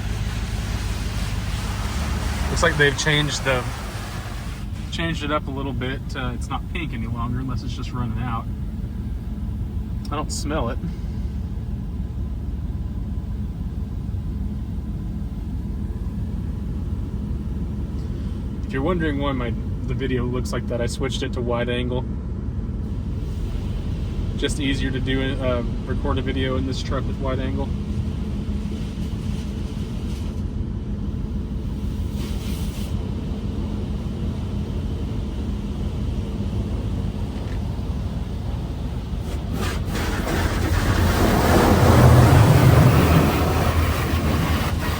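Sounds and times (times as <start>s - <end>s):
spray hissing on car body: 0.0s - 5.2s, 31.7s - 33.0s, 38.1s - 44.9s
car wash low rumble: 0.0s - 44.9s.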